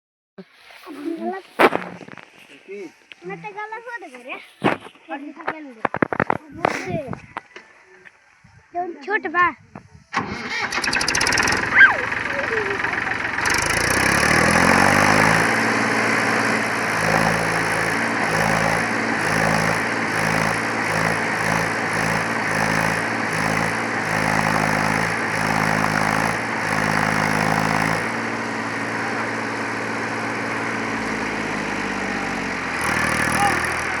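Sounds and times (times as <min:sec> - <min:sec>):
tractor diesel engine revving: 0:10.2 - 0:34.0.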